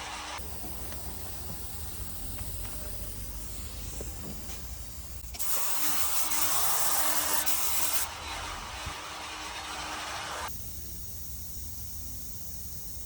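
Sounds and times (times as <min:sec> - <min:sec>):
paint spray gun hissing: 0:00.4 - 0:08.1.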